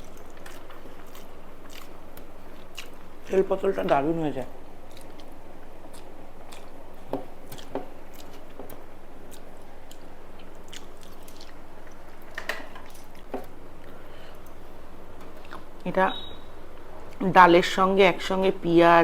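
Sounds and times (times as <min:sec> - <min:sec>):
person chewing food: 0:00.0 - 0:03.4, 0:04.7 - 0:15.8
steady low hum: 0:00.0 - 0:19.0.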